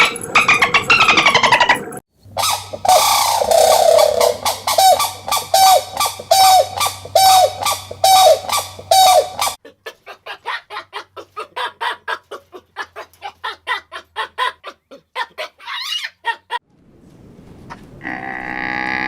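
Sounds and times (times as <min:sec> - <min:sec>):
chickens squawking: 0:00.0 - 0:09.6.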